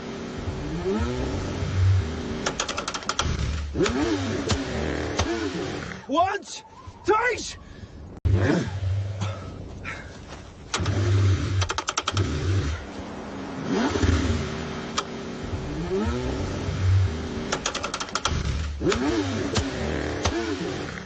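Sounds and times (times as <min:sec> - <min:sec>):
car engine cranking: 0:00.0 - 0:06.1, 0:10.6 - 0:12.9, 0:13.6 - 0:21.0
rapid clicking: 0:02.4 - 0:04.6, 0:10.7 - 0:12.3, 0:17.5 - 0:20.4.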